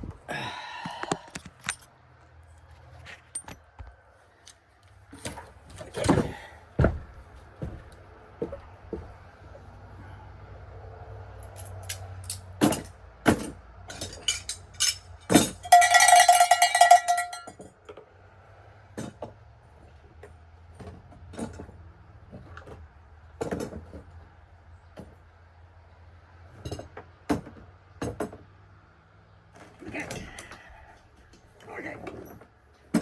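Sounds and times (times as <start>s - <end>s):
metal objects clanking: 11.5s - 17.6s
metal ringing like a bell: 14.4s - 17.6s.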